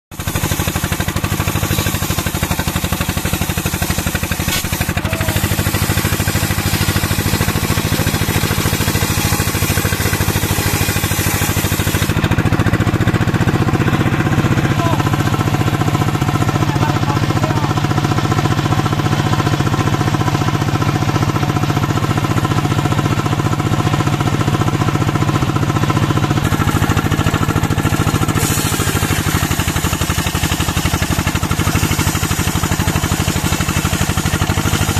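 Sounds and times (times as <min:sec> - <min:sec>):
sawmill engine knocking: 0:00.1 - 0:34.9.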